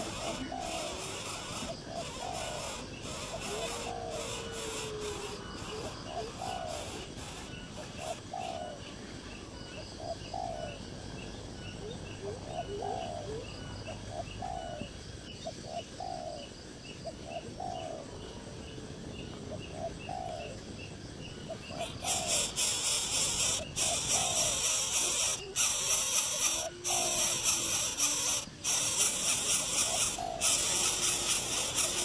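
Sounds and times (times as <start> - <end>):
bird calling: 0.0 - 8.8, 21.4 - 32.0
fast steady ticking: 21.8 - 32.0.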